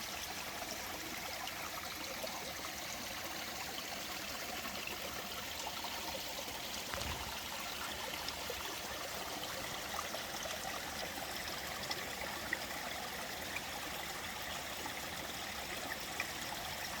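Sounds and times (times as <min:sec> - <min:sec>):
stream flowing over rocks: 0:00.0 - 0:17.0
small water splashes: 0:06.8 - 0:08.8.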